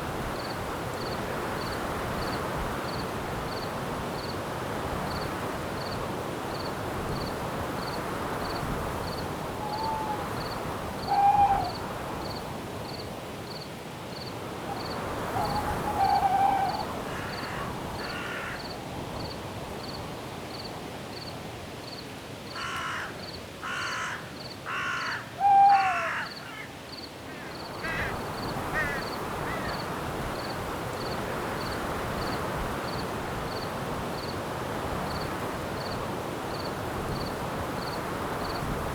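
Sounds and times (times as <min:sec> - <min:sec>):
wind hiss: 0:00.0 - 0:22.0, 0:24.8 - 0:38.9
crickets chirping: 0:00.1 - 0:38.9
birds calling: 0:14.7 - 0:18.5.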